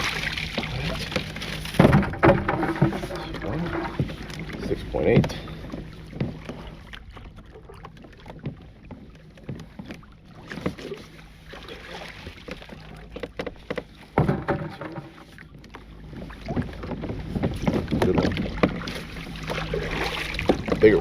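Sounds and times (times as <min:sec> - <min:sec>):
water sloshing and dripping: 0:00.0 - 0:21.0
knocks and clicks: 0:01.2 - 0:05.4, 0:13.2 - 0:15.2.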